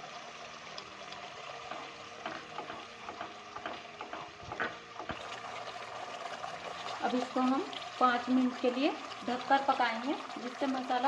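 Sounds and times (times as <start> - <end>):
food sizzling in oil: 0.0 - 11.0
spatula tapping and scraping pan: 1.6 - 5.2.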